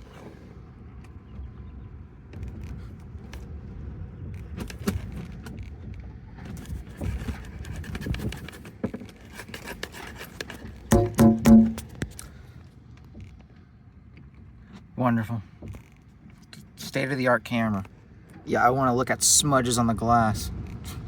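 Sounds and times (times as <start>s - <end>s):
strong wind buffeting house: 0.0s - 21.0s
rattles and knocks: 4.6s - 12.2s.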